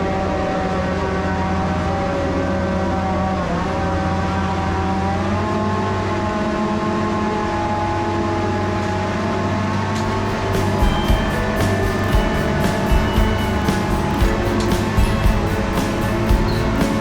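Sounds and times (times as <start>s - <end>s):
farm machinery engine running: 10.1s - 17.0s.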